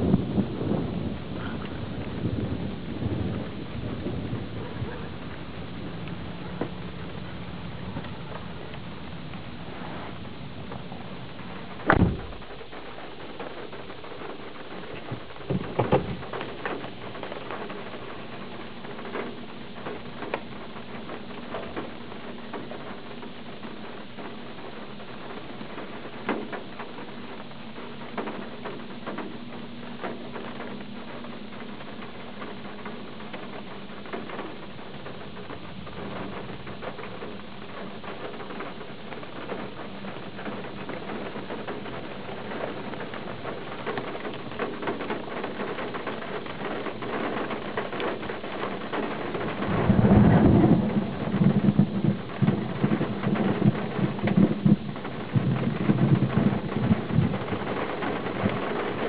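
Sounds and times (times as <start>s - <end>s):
raindrops tapping on glass: 0.0s - 59.0s
loud thumps: 11.8s - 12.6s.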